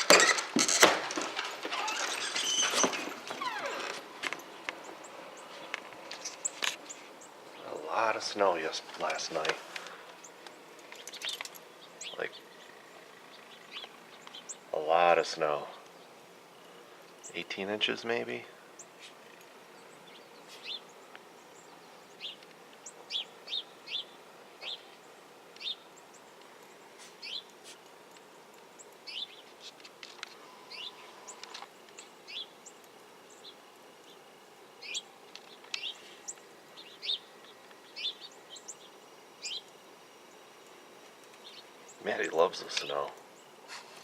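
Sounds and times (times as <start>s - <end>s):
faint steady hiss: 0.0s - 44.0s
small birds chirping: 1.1s - 44.0s.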